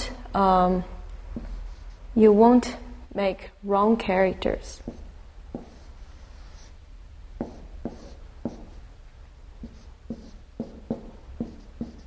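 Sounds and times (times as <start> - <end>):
faint low hum: 0.0 - 12.0
writing tool scratching on surface: 4.8 - 6.8, 7.4 - 8.8, 9.6 - 12.0.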